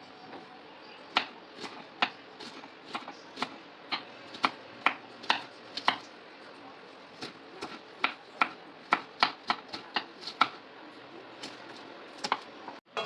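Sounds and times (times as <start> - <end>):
knife chopping on cutting board: 1.2 - 6.1, 7.2 - 10.6, 11.4 - 12.5.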